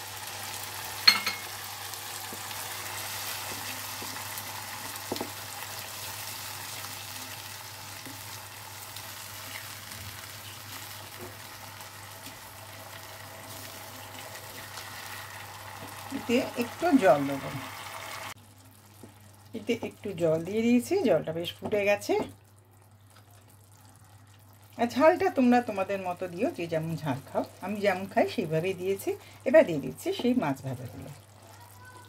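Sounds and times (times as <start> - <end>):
paste sizzling in oil: 0.0 - 20.0
spatula stirring in pan: 2.1 - 16.8.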